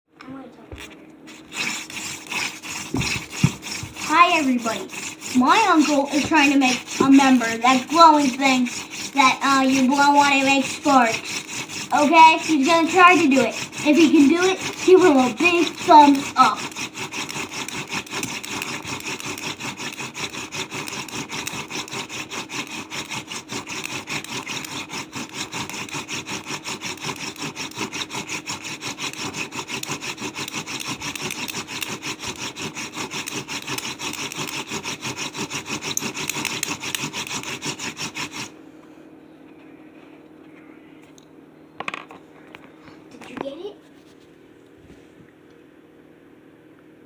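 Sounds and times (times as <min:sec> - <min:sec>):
wooden spindle grinding into board: 0:01.3 - 0:38.5.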